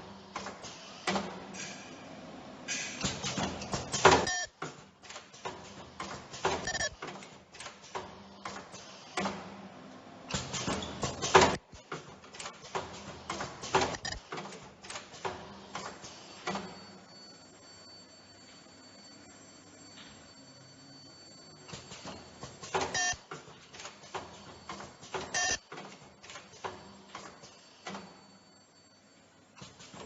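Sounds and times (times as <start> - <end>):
mechanical clicks and clacks: 2.7 - 9.5, 10.3 - 16.8, 21.7 - 28.1.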